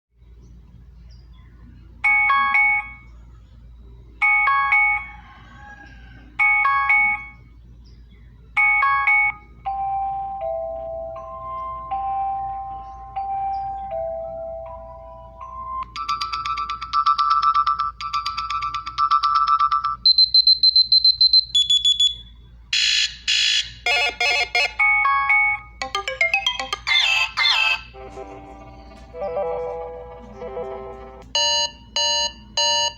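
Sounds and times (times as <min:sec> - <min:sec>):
phone alarm tone bell-like notes: 0:08.6 - 0:21.0, 0:22.8 - 0:32.9
alarm tone with held notes: 0:22.8 - 0:32.9
high-pitched electronic beeping: 0:22.8 - 0:32.9
short beeping melody: 0:25.4 - 0:32.9.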